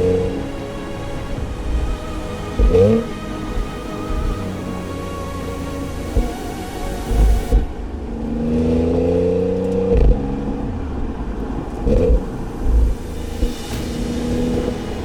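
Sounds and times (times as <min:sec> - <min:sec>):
car engine accelerating: 0:00.0 - 0:15.0
low thumps from road: 0:11.3 - 0:15.0.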